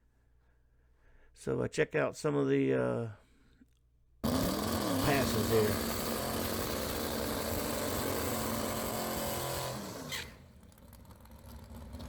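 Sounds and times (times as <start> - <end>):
drag car engine running: 4.2 - 12.0.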